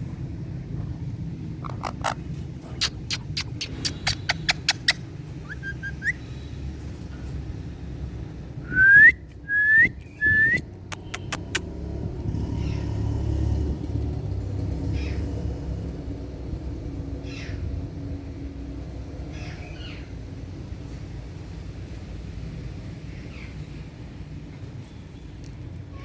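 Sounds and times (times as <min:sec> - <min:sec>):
sharp clicks: 0:02.8 - 0:05.0, 0:10.5 - 0:11.6
parakeet whistles: 0:02.8 - 0:06.2, 0:08.7 - 0:11.6.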